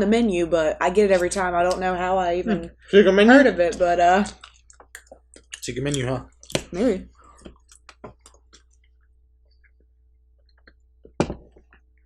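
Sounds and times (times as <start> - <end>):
wet mouth clicks and chewing: 3.7 - 10.8.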